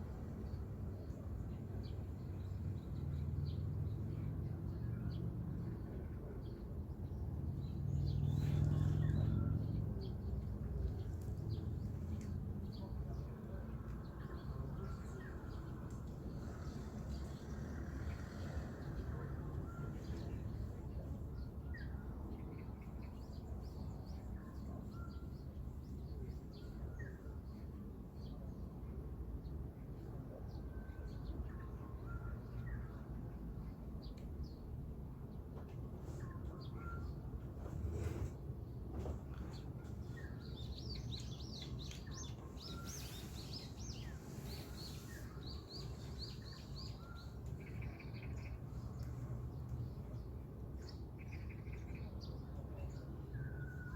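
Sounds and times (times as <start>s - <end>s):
small birds chirping: 4.7s - 28.4s, 39.0s - 53.9s.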